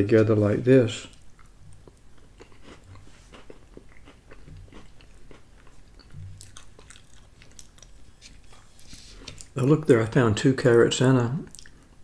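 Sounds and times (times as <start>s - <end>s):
person chewing food: 1.1s - 9.6s, 11.5s - 11.9s.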